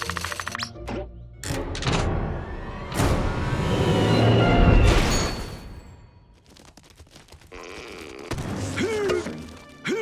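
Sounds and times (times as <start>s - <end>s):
background music: 0.0s - 5.8s, 8.3s - 10.0s.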